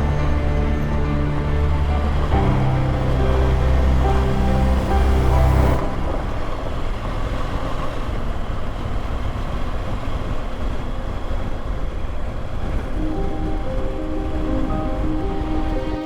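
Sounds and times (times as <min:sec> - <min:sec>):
background music: 0:00.0 - 0:07.3, 0:12.9 - 0:16.0.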